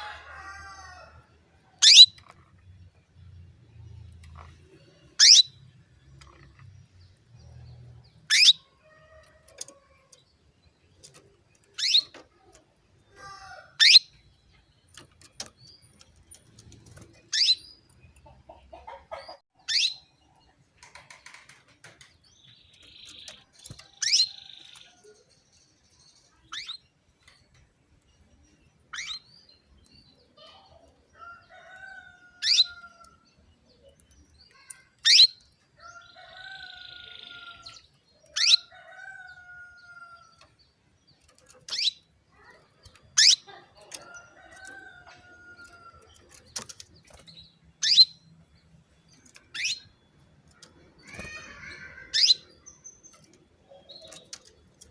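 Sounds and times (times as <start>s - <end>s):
canary sharp calls: 1.8s - 2.3s, 5.2s - 5.6s, 8.3s - 8.7s, 13.2s - 14.1s, 41.7s - 44.2s.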